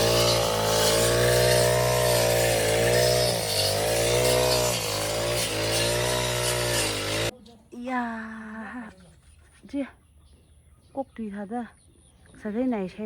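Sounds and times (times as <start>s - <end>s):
lawn mower engine cutting grass: 0.0s - 7.3s.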